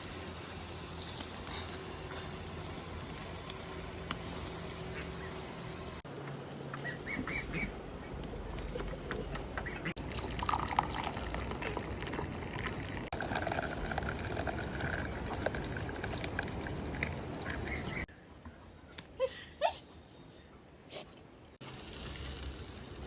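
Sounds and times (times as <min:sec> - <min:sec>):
water pouring steadily: 0:09.7 - 0:17.2.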